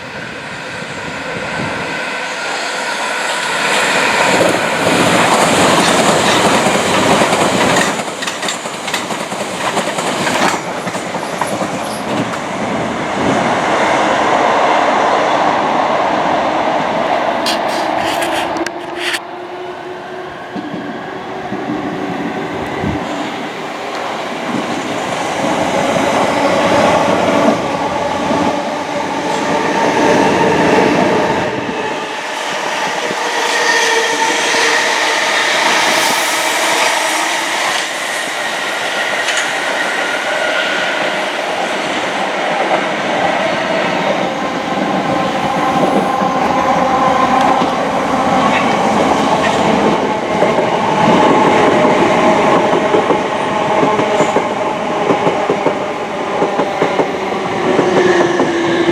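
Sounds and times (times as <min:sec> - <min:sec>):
train wheels on rails: 0:00.0 - 0:58.9
steady whining tones: 0:34.2 - 0:49.3.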